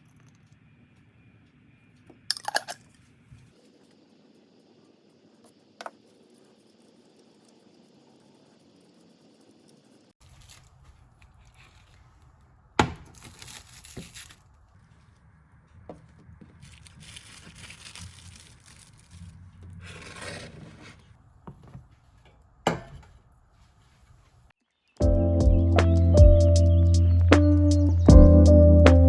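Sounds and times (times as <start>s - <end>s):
scraping and rustling: 9.6s - 24.5s
sharp knocks: 22.7s - 23.2s.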